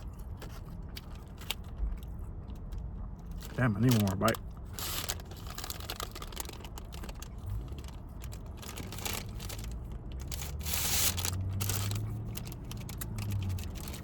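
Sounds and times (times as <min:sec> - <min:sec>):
biting and chewing: 0:00.0 - 0:14.0
paper bag rustling: 0:03.4 - 0:14.0.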